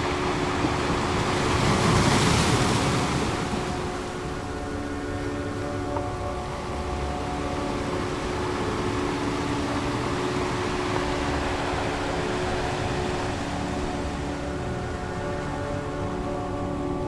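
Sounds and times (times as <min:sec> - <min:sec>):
ocean surf rushing: 0:00.0 - 0:04.5
ambient synth drone: 0:00.0 - 0:17.0.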